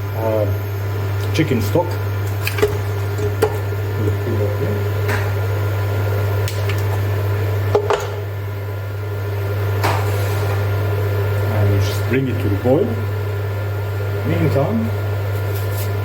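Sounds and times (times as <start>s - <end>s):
low appliance hum: 0.0s - 16.0s
frozen stock knocking in a pan: 2.3s - 4.2s.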